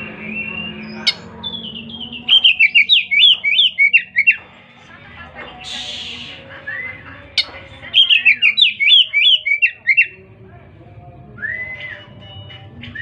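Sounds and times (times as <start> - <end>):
songbird whistling: 0.0 - 4.4, 5.6 - 10.2, 11.4 - 12.2.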